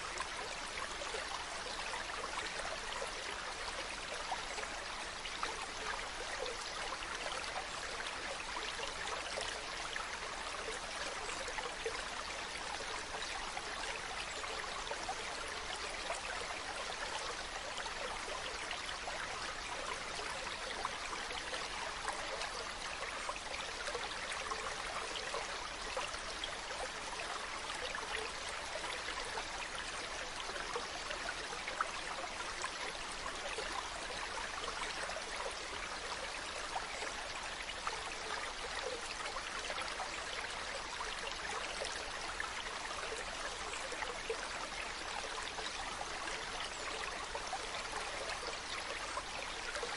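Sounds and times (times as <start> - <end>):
stream flowing: 0.0 - 49.9.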